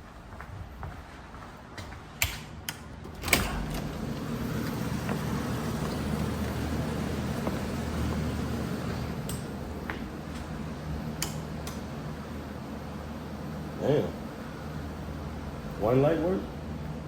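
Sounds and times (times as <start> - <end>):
steady low hum: 0.0 - 17.0
light switches clicking: 9.2 - 9.5, 11.1 - 11.9.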